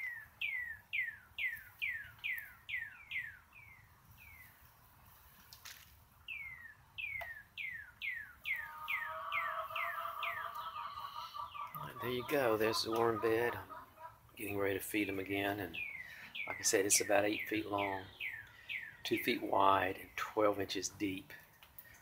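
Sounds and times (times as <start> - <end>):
low drawn-out bird call: 6.3 - 14.2, 14.9 - 19.3.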